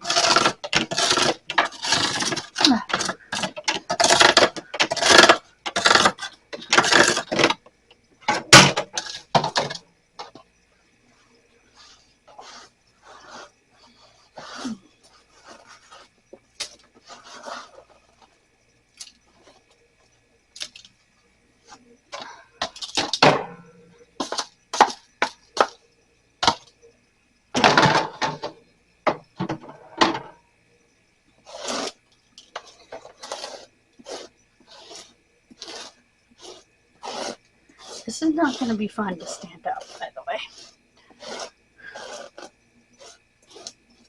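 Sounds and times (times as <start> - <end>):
scraping bursts: 0.0 - 7.6, 31.4 - 44.0
objects knocking and clattering: 0.0 - 10.5, 22.2 - 25.8, 27.6 - 30.4.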